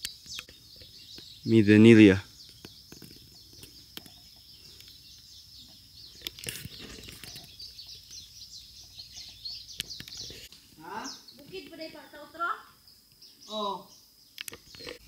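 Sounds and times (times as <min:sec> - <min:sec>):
birds chirping: 0:00.0 - 0:15.0
sharp clicks: 0:14.3 - 0:15.0.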